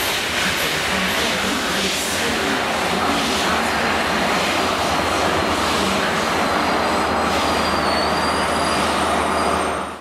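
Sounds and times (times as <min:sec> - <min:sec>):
wheel and rail noise: 0:00.0 - 0:10.0
diesel engine hum: 0:00.6 - 0:10.0
high-pitched wheel squeal: 0:06.7 - 0:10.0.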